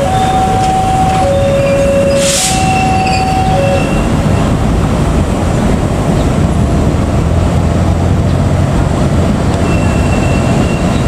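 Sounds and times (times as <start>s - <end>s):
two-pitch alternating tone: 0.0s - 4.2s
train coaches rumbling on rails: 0.0s - 11.0s.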